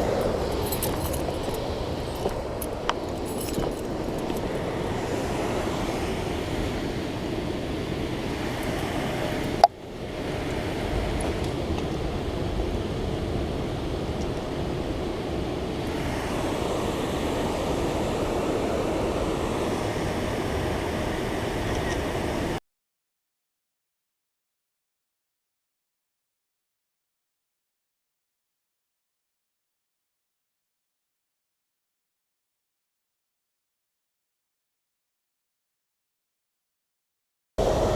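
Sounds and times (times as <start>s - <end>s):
water rushing through spillway: 0.0s - 22.6s.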